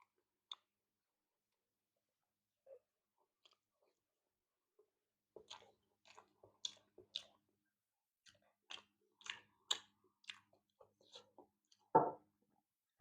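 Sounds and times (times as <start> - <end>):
person chewing food: 0.0 - 0.7, 2.8 - 4.0, 5.3 - 7.6, 8.2 - 11.9
thump: 12.0 - 12.2.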